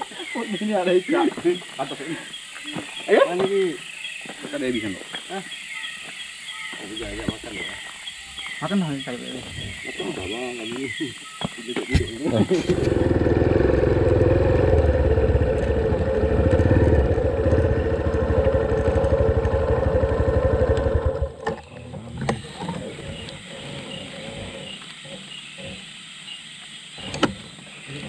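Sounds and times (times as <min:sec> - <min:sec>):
motorcycle engine idling: 0:12.0 - 0:21.4.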